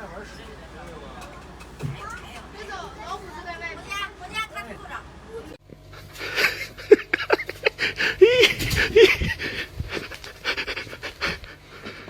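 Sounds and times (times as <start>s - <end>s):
animal panting rapidly: 7.8s - 12.0s.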